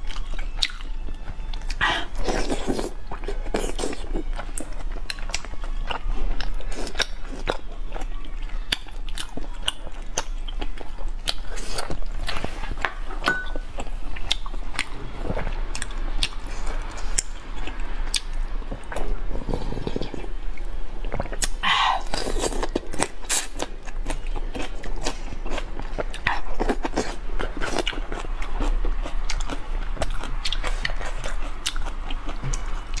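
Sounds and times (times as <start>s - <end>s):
person biting and chewing food: 21.1s - 33.0s.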